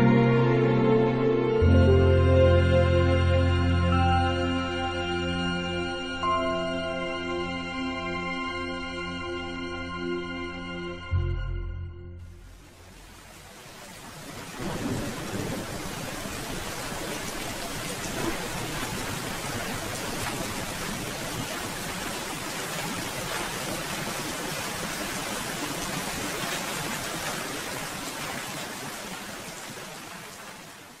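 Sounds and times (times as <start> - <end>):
steady rain falling: 12.2 - 31.0.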